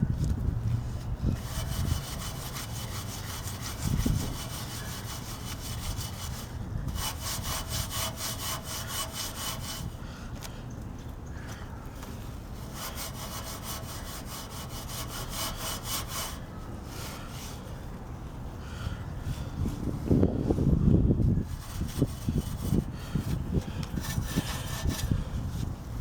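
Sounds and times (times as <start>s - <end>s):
scrubbing strokes on metal: 1.3s - 10.0s, 12.5s - 17.7s, 21.5s - 25.6s.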